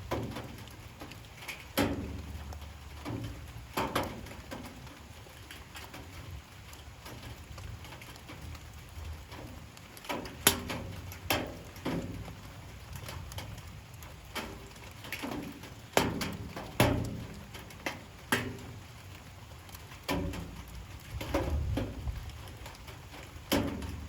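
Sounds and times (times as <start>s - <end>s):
raindrops plinking: 0.0s - 24.0s
soft steady rain hiss: 0.0s - 24.0s.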